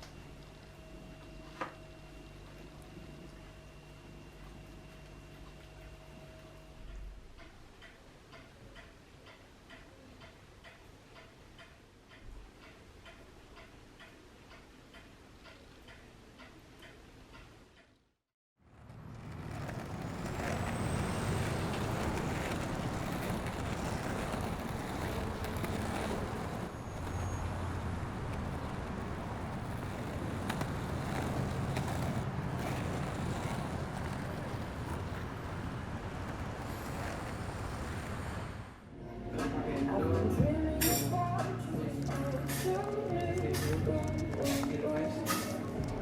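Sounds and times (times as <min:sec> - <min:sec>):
road traffic noise: 0:18.6 - 0:40.3.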